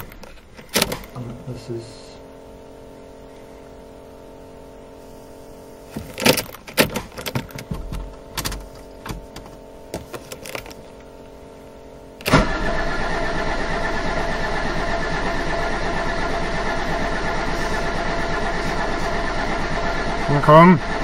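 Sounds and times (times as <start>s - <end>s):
diesel engine running loudly: 11.8s - 21.0s
diesel engine starting: 12.2s - 21.0s
engine knocking and coughing: 16.9s - 21.0s.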